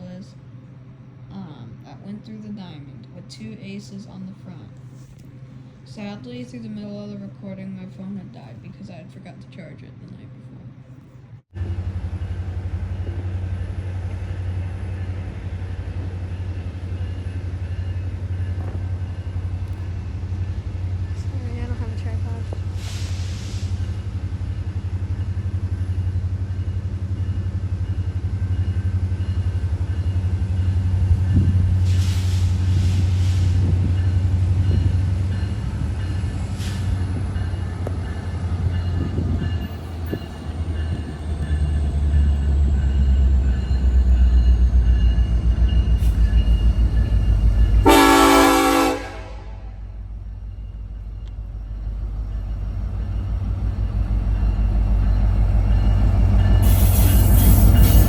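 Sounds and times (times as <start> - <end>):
freight train rumbling: 0.0 - 58.0
train horn blast: 47.8 - 50.1.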